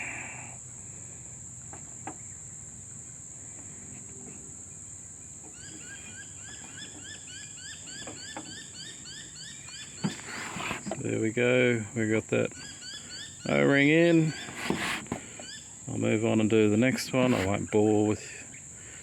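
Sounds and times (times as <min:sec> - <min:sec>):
insects shrilling: 0:02.2 - 0:19.0.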